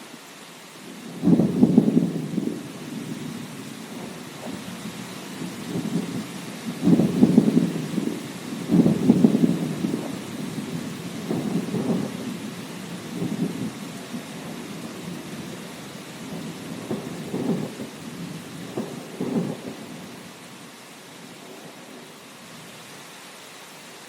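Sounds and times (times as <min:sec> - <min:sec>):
rain hissing: 0:00.0 - 0:24.0
thunder rumbling: 0:01.0 - 0:20.3.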